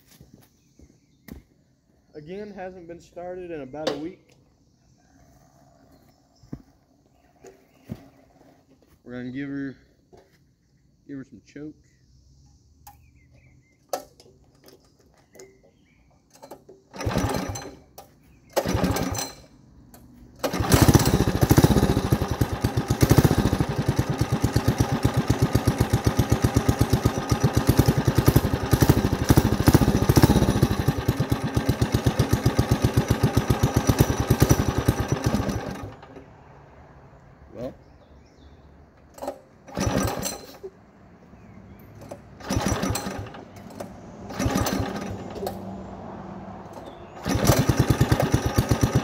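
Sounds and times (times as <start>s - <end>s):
pull-start attempts: 13.8s - 36.3s, 39.0s - 40.8s, 41.8s - 45.9s, 46.6s - 49.0s
small engine running: 16.9s - 17.8s, 18.5s - 19.5s, 20.4s - 36.3s, 39.2s - 40.7s, 42.0s - 45.8s, 46.6s - 49.0s.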